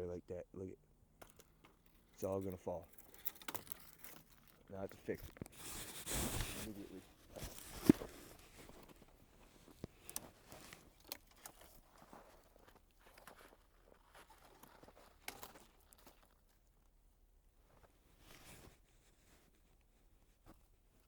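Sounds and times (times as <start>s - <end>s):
sticks and twigs being handled: 1.2s - 16.9s
footsteps crunching in snow: 5.5s - 16.2s.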